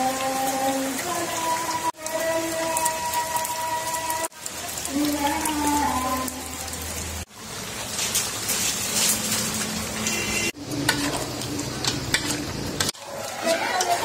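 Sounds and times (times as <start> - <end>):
curry sizzling in a pot: 0.0 - 14.0
spoon scraping a metal pot: 10.8 - 11.3, 12.1 - 14.0.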